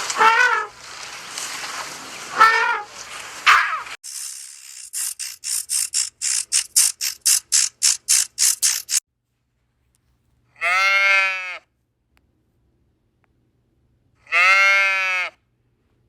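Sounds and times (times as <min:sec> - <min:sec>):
goat bleat: 0:10.6 - 0:11.6, 0:14.3 - 0:15.3.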